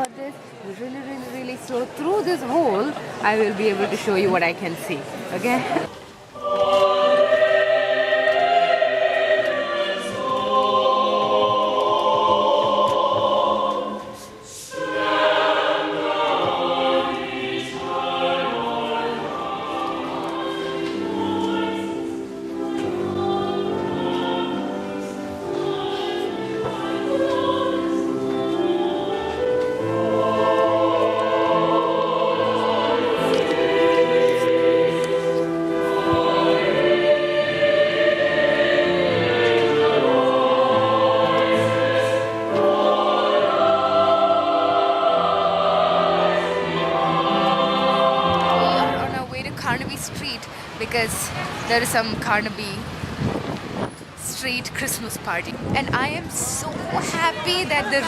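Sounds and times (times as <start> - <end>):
choir singing a carol: 1.3 - 58.0.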